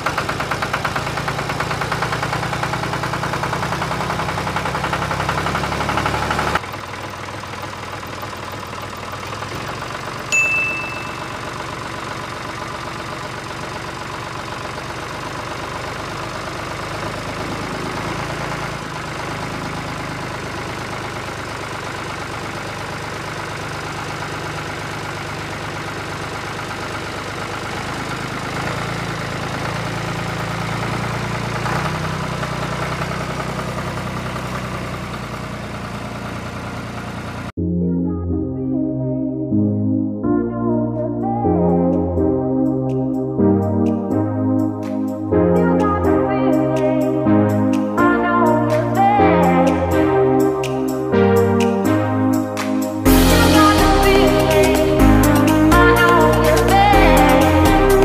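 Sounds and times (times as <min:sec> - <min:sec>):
tractor engine idling: 0:00.0 - 0:37.6, 0:42.6 - 0:58.0
short bright ding: 0:10.3 - 0:11.4.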